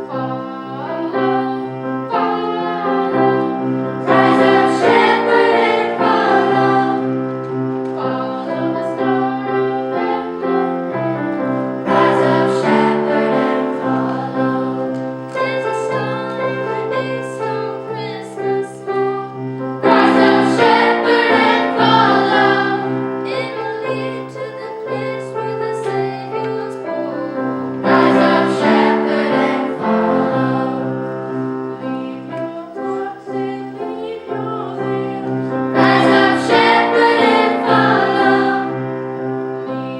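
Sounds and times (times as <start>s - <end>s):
choir singing: 0.0s - 39.9s
piano accompaniment: 0.0s - 39.9s.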